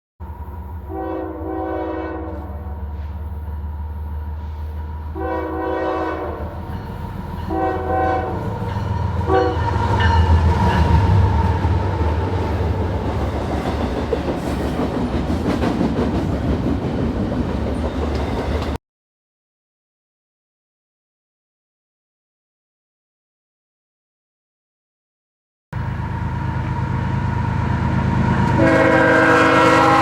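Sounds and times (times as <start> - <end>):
locomotive air horn blasts: 0.9 - 2.8, 5.2 - 6.7, 7.5 - 8.6, 9.2 - 9.9, 28.4 - 30.0
train wheels on rails: 2.2 - 18.8, 25.8 - 30.0.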